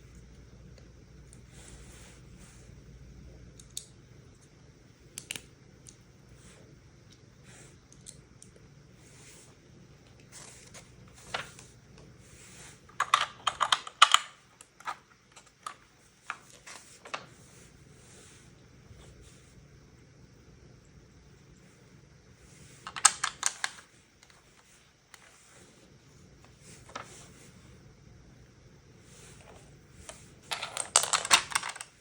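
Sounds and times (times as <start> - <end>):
plastic bricks clicking together: 30.5 - 31.9.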